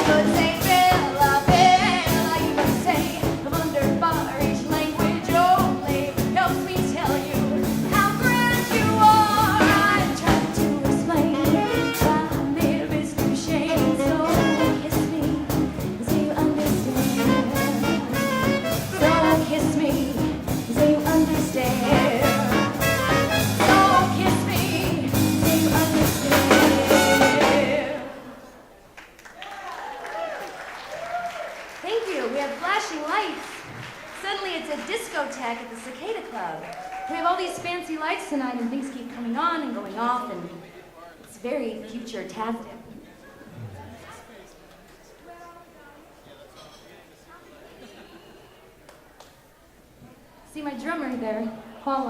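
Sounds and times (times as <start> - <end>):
woman singing: 0.0 - 18.2, 18.9 - 28.4
swing band playing: 0.0 - 28.3.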